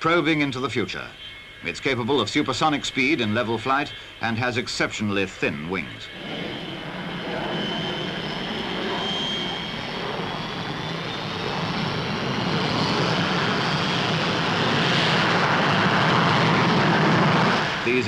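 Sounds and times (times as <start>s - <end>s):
jet flying past: 5.4s - 18.0s.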